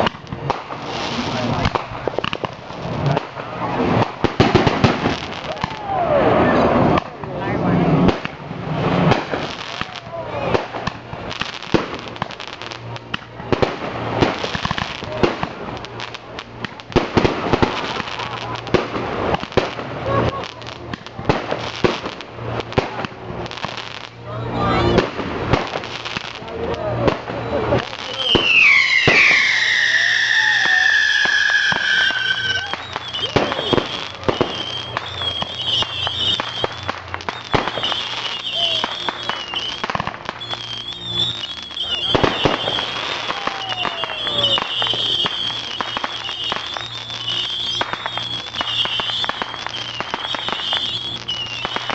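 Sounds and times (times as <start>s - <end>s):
fireworks banging and crackling: 0.0s - 51.9s.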